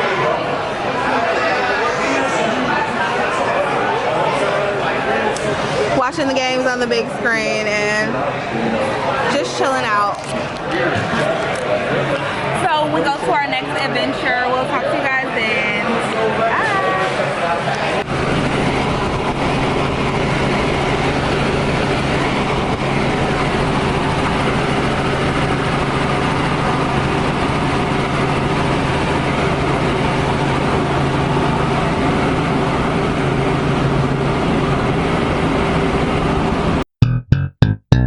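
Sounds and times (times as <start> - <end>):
vehicle engine humming: 18.0 - 38.0.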